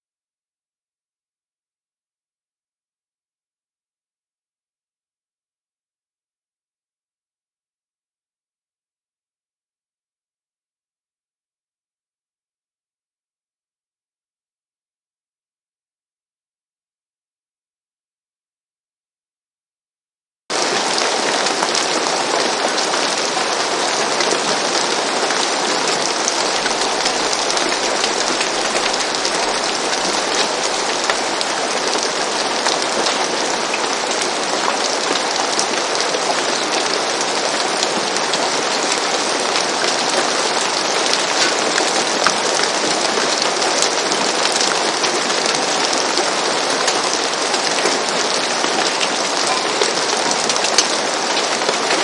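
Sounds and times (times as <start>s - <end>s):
steady rain: 20.5s - 52.0s.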